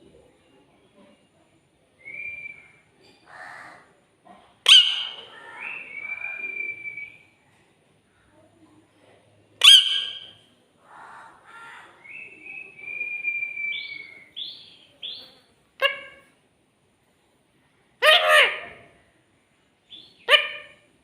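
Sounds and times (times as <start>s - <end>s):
parrot squawking: 4.6s - 6.4s, 9.6s - 10.4s, 15.8s - 16.3s, 18.0s - 18.8s, 20.2s - 20.8s
parrot whistling: 9.6s - 10.3s.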